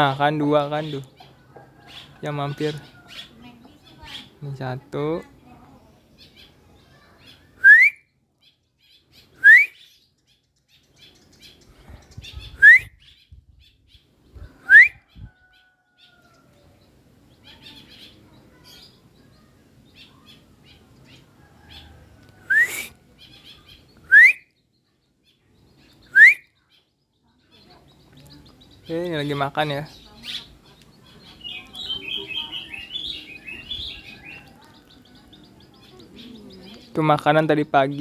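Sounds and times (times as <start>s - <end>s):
faint bird chirps: 6.0s - 38.0s
bird whistle rising in pitch: 7.6s - 8.0s, 9.4s - 9.9s, 12.6s - 13.0s, 14.6s - 15.0s, 22.5s - 22.9s, 24.1s - 24.5s, 26.1s - 26.5s.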